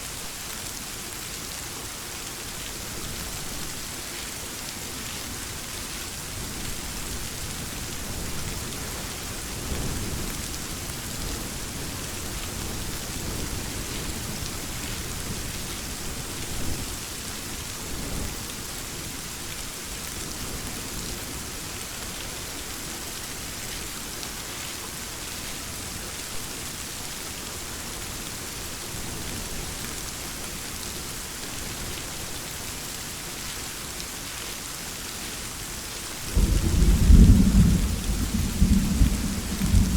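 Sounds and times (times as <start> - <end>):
steady rain falling: 0.0 - 39.9
low rolling thunder rumbles: 36.3 - 39.9.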